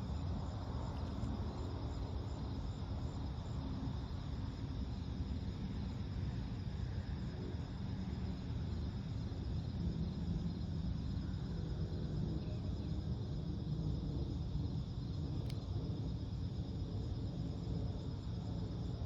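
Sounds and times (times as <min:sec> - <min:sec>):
crickets trilling: 0:00.0 - 0:19.0
low steady rumble: 0:00.0 - 0:19.0
faint click: 0:15.4 - 0:15.6.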